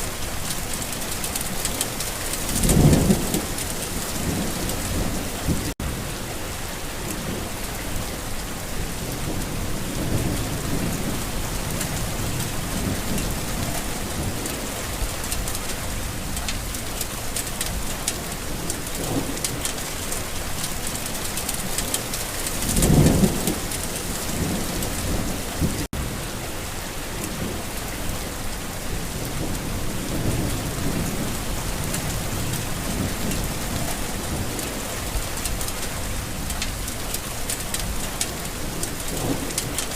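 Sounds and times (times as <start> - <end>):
thunder rumbling: 0.0 - 6.1, 8.5 - 26.3
steady rain: 0.0 - 39.9.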